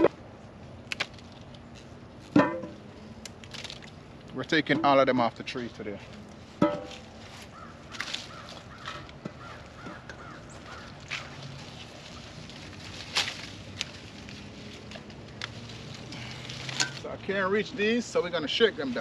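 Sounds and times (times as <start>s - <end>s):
bird calling: 7.4s - 12.4s.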